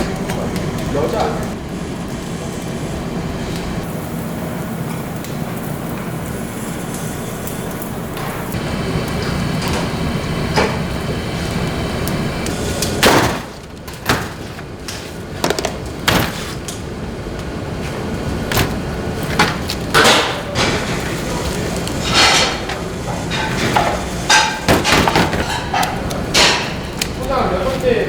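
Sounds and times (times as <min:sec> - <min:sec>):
kitchen knocks and clinks: 0:22.0 - 0:27.3.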